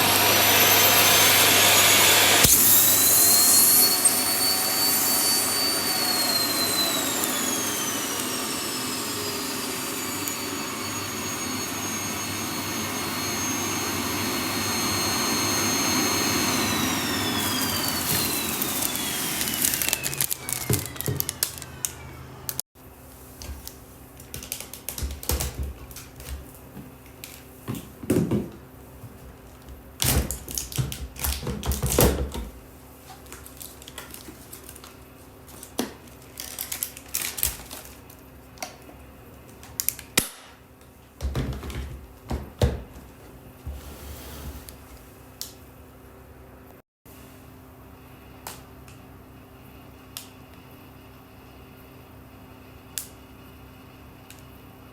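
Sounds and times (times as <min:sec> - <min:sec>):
vacuum cleaner motor whining: 0:00.0 - 0:22.6.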